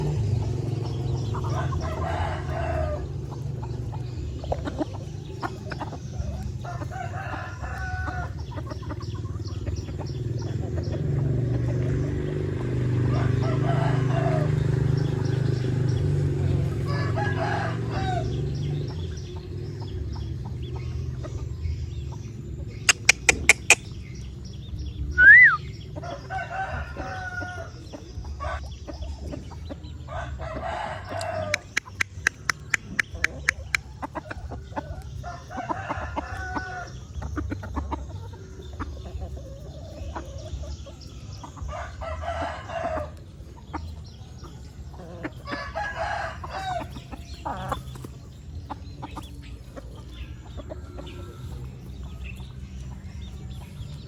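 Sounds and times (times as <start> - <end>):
chickens clucking: 0.0 - 54.0
roosters crowing: 0.0 - 54.0
sharp clicks: 22.9 - 23.9, 31.6 - 33.8
loud rising and falling squeak: 25.2 - 25.6.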